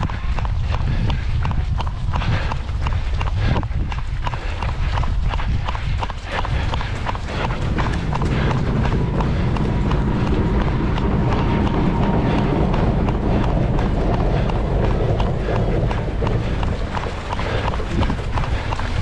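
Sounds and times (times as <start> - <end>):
running footsteps on wet pavement: 0.0 - 19.0
wind rumbling on microphone: 0.0 - 19.0.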